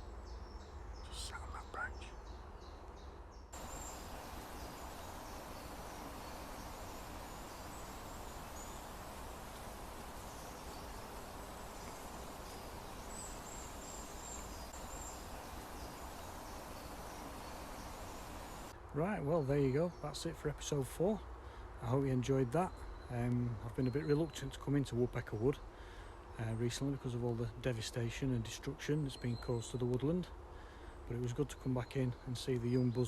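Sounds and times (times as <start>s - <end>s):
faint high-pitched chirping: 3.6s - 18.8s
outdoor hiss: 3.6s - 18.8s.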